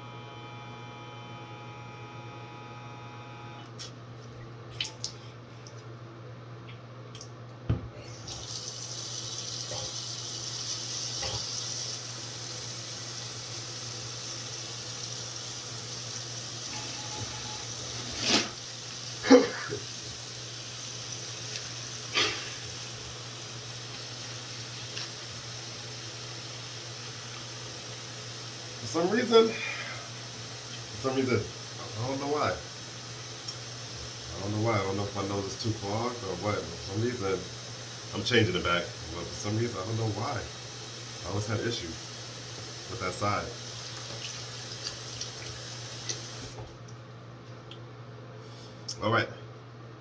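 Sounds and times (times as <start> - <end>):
nasal irrigator pump hissing: 8.2 - 46.6.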